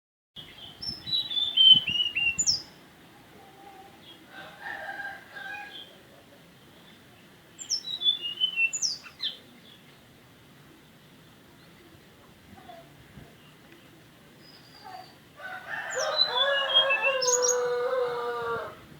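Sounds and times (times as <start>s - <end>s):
songbird whistled notes: 0.9s - 2.7s, 7.7s - 9.4s.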